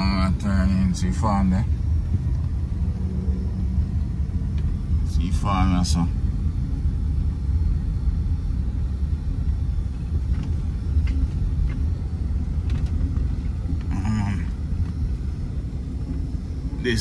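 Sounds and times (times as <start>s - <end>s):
vehicle rumbling while driving: 0.0s - 17.0s.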